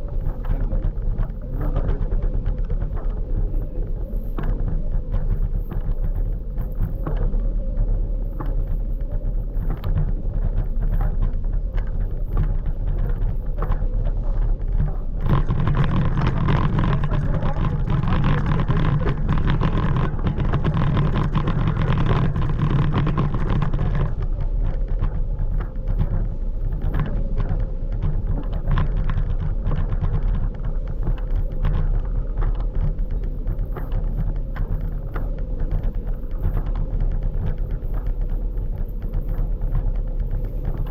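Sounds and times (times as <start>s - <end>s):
faint steady whine: 0.0s - 40.9s
wind buffeting microphone: 0.0s - 40.9s
scooter engine rumble: 13.6s - 27.1s.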